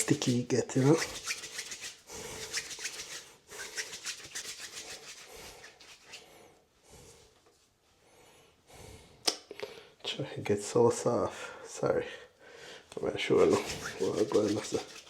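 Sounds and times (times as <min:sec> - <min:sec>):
hands kneading putty: 0:13.4 - 0:15.0.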